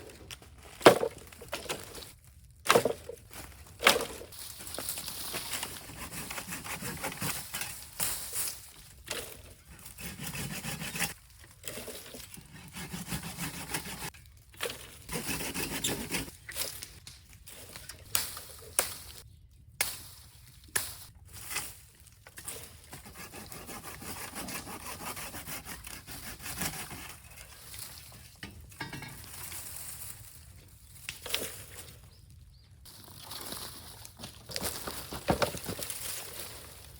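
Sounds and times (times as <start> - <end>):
wood scraping and knocking: 34.5 - 36.0.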